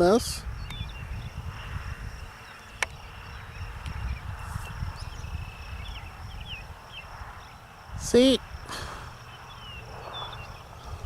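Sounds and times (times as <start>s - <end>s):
insects droning: 0.0s - 11.0s
bird chirps: 0.5s - 7.8s, 8.8s - 11.0s.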